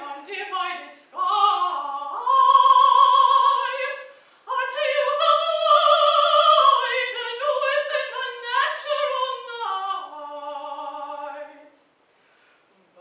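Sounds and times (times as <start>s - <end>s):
woman singing classical song: 0.0s - 11.9s
singer breathing: 4.0s - 4.5s, 12.0s - 12.7s.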